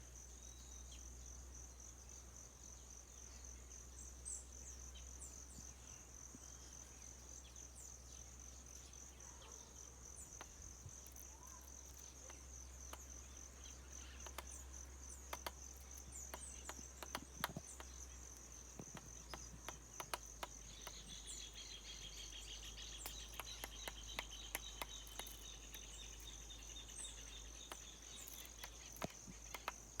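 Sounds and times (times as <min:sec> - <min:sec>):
lower insect trill: 0:00.0 - 0:30.0
high insect trill: 0:00.1 - 0:30.0.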